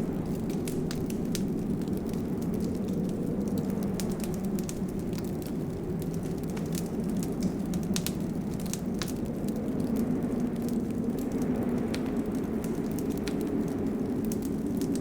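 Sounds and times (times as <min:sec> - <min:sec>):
low rumble of burning fire: 0:00.0 - 0:15.0
wood fire crackling: 0:00.0 - 0:15.0.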